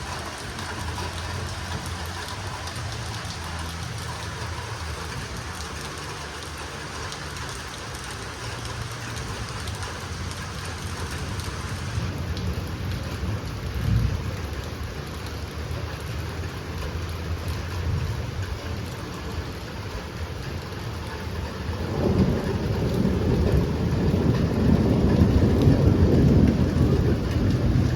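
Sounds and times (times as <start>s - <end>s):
low rumble: 0.0s - 14.6s
heavy rain falling: 0.0s - 27.9s.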